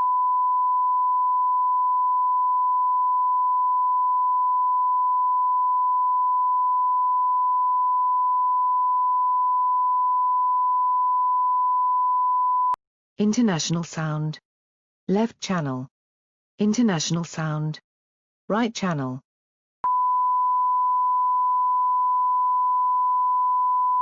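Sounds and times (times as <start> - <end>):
steady sine-wave tone: 0.0 - 12.8, 19.8 - 24.0.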